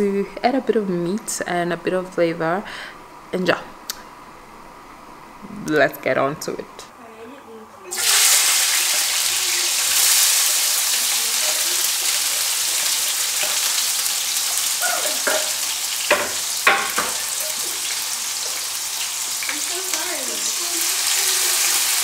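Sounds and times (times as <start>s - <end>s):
peppers sizzling in oil: 7.9s - 22.0s.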